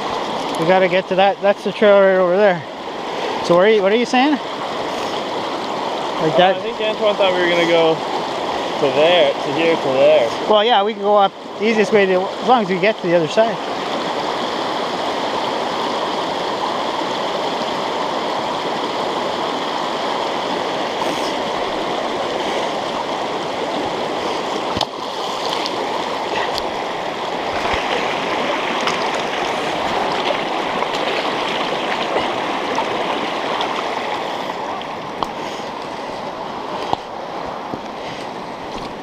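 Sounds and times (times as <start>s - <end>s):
river water running: 0.0s - 39.0s.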